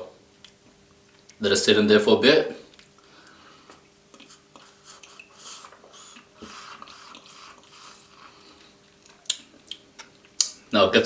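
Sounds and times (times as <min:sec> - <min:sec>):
soft mouth noises: 0:02.7 - 0:10.6.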